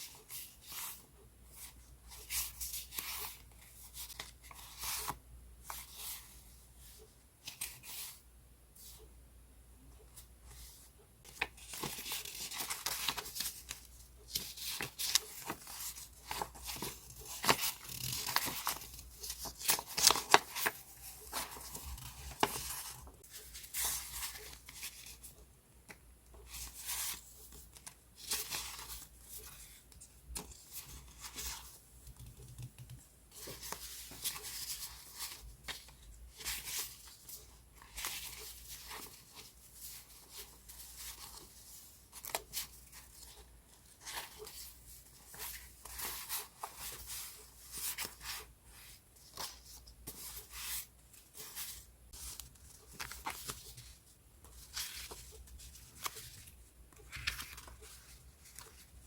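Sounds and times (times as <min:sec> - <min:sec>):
paper rustling and crinkling: 0:11.3 - 0:25.3, 0:26.5 - 0:32.2, 0:33.3 - 0:59.0.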